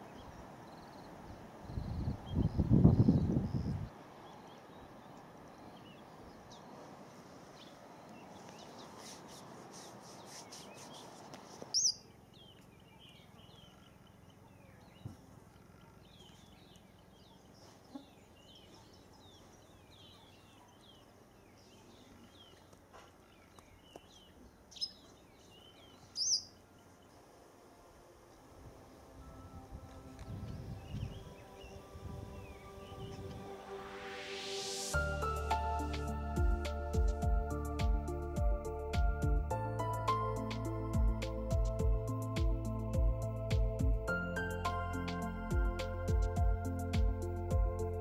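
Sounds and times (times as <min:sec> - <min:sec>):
small birds chirping: 0:00.0 - 0:27.3
low background hiss: 0:00.0 - 0:48.0
sharp high bird calls: 0:11.7 - 0:12.1, 0:26.0 - 0:26.6.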